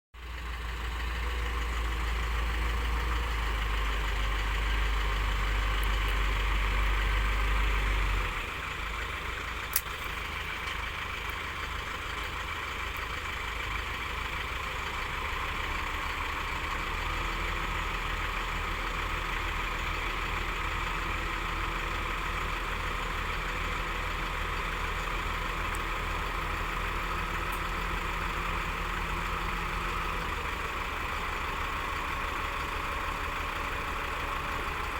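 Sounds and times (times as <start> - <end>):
bulldozer diesel engine running: 0.2 - 34.9
sharp click: 9.7 - 10.0.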